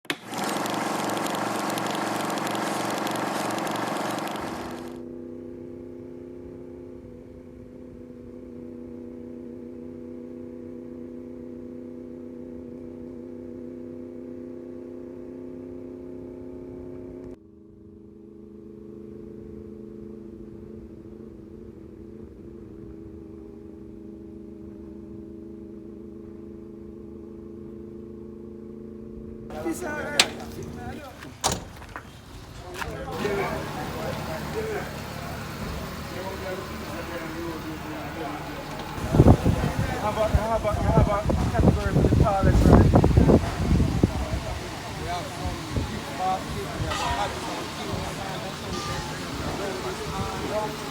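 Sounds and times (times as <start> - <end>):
vehicle engine humming: 0.0 - 50.9.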